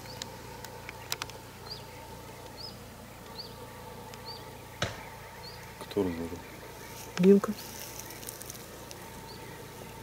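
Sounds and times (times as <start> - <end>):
small bird chirping: 0.0 - 10.0
sharp knock: 4.8 - 5.1.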